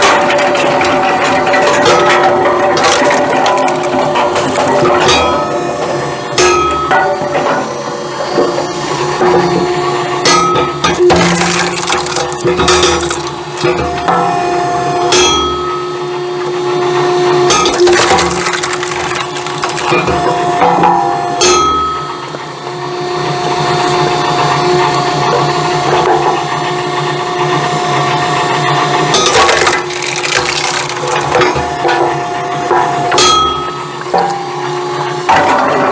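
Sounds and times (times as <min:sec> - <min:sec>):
hydraulic machinery humming: 0:00.0 - 0:35.9
wood cracking and falling: 0:00.1 - 0:04.9, 0:11.0 - 0:13.8, 0:17.7 - 0:20.3, 0:29.3 - 0:31.6.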